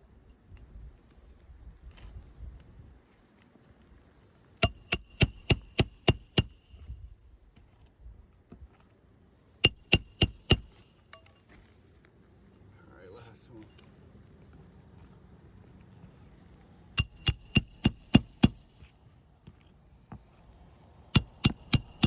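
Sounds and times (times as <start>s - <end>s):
hammer striking nails: 4.6s - 6.7s, 9.6s - 10.9s, 17.0s - 18.8s, 21.1s - 22.0s.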